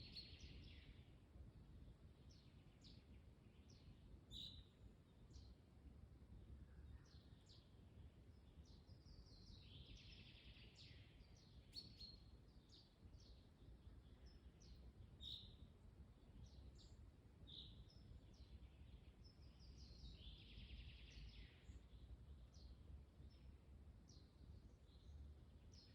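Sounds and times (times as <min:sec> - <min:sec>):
bird song phrase: 0:00.0 - 0:01.1, 0:02.2 - 0:05.6, 0:06.6 - 0:23.5, 0:24.1 - 0:25.9
low rumble of wind: 0:00.0 - 0:25.9.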